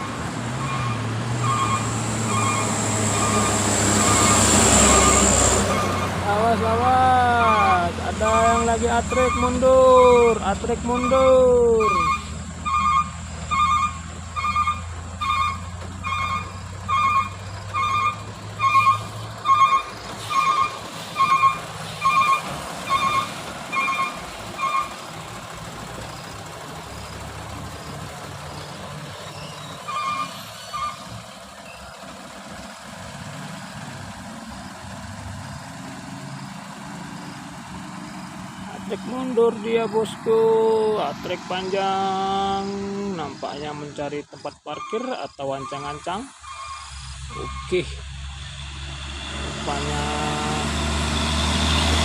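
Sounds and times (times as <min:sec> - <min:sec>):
reversing alarm beeping: 0:00.0 - 0:06.1, 0:07.4 - 0:24.9
truck engine: 0:00.0 - 0:52.0.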